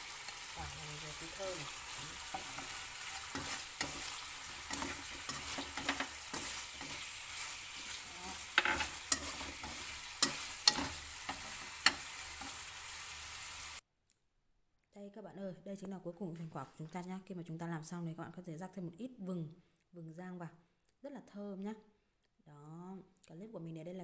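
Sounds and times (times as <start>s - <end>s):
chicken wings sizzling in a wok: 0.0s - 13.8s
chopsticks clicking against a pan: 2.3s - 7.0s, 8.5s - 12.5s.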